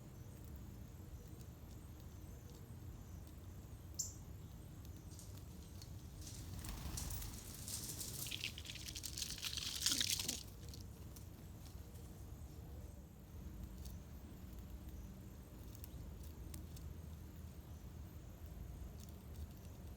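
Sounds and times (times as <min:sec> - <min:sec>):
rustling and crackling: 0:04.8 - 0:12.2.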